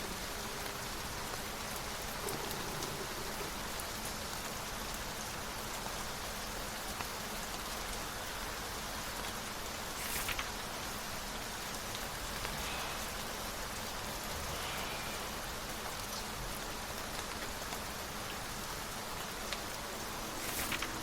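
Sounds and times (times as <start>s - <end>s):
steady rain hiss: 0.0s - 21.0s.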